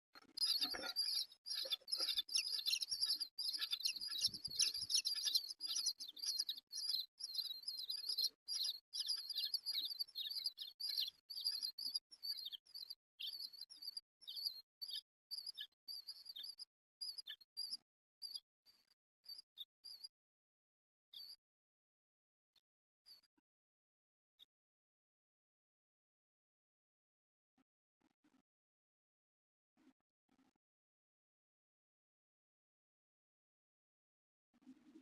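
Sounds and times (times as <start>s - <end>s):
nestling birds cheeping: 0.3s - 16.5s.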